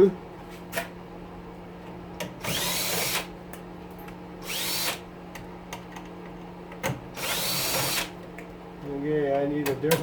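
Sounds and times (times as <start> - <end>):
steady low hum: 0.0 - 10.0
cordless drill whining: 2.4 - 3.3, 4.4 - 5.0, 7.2 - 8.1.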